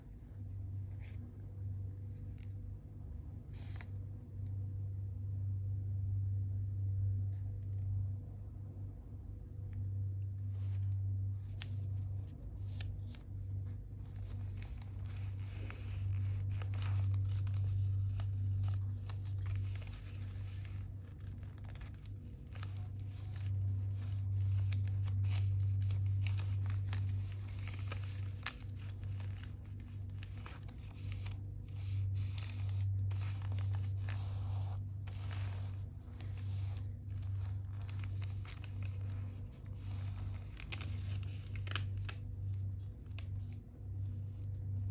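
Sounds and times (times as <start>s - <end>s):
steady low hum: 0.0s - 44.9s
paper being folded and creased: 3.4s - 4.0s, 10.4s - 44.9s.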